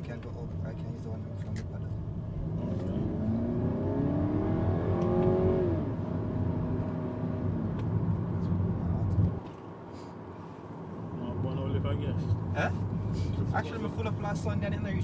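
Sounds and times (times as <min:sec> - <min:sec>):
car engine accelerating: 0:02.0 - 0:09.4.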